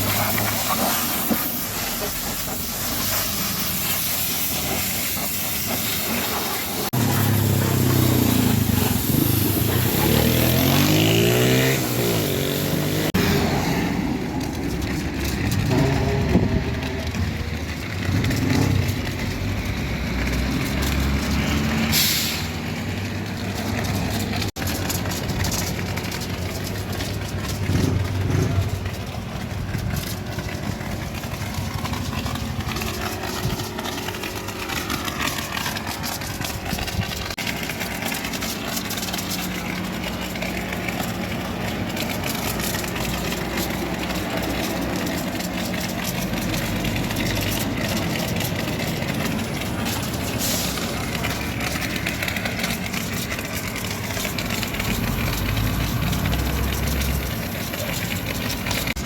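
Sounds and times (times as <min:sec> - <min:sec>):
air hiss: 0:00.0 - 0:10.0, 0:21.9 - 0:22.5
diesel truck engine running: 0:06.3 - 0:59.0.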